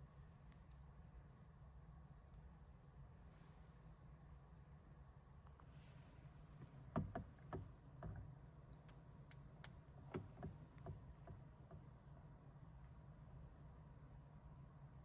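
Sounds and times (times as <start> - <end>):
faint knocks and clicks: 6.6 - 12.3.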